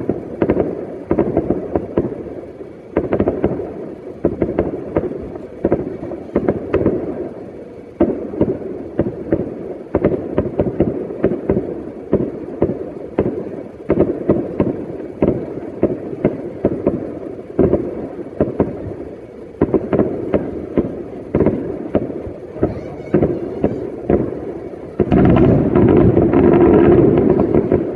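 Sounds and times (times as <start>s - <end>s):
fireworks bangs and cracks: 0.0s - 27.9s
low rumble: 21.7s - 27.9s.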